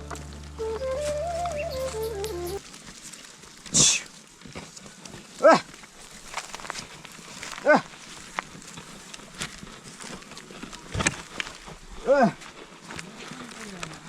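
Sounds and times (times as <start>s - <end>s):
animal calls rising and falling: 0.6s - 2.6s.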